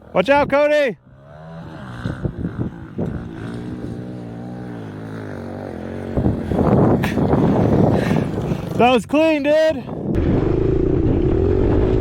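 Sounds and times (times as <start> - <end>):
dirt bike engine running: 0.0 - 8.9.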